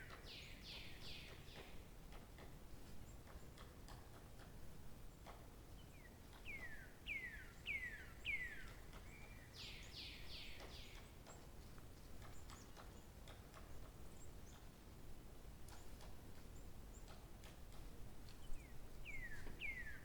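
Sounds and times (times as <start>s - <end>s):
low background hiss: 0.0s - 20.0s
songbird singing whistles: 19.1s - 20.0s.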